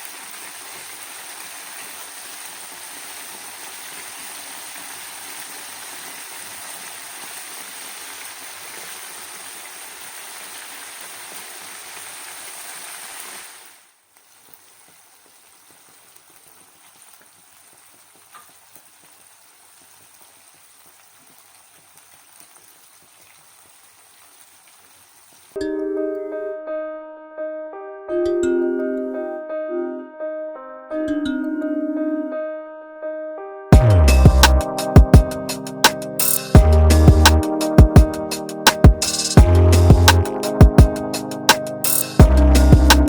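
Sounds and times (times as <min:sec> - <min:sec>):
food sizzling in hot oil: 0:00.0 - 0:25.6, 0:34.8 - 0:37.5, 0:38.1 - 0:42.2.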